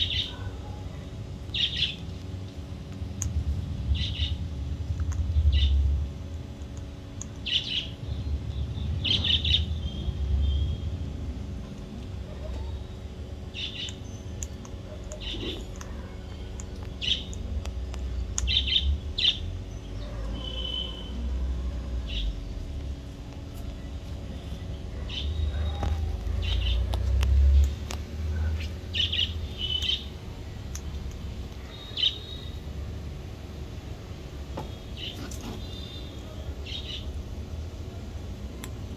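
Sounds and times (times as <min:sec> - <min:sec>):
birds chirping: 0:00.0 - 0:02.5, 0:03.3 - 0:37.7
low rumble: 0:02.4 - 0:12.1.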